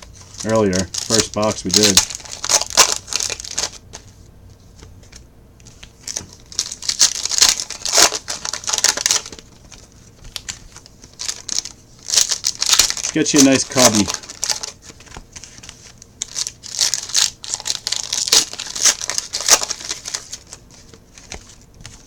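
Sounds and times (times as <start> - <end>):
card pack wrappers crinkling: 0.0 - 4.1, 4.9 - 22.0.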